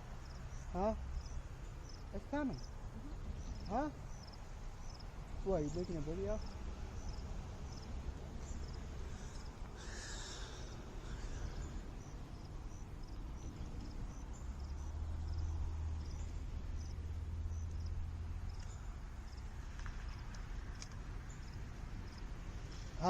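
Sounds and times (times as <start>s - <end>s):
crickets chirping: 0.0s - 23.0s
low steady rumble: 0.0s - 23.0s.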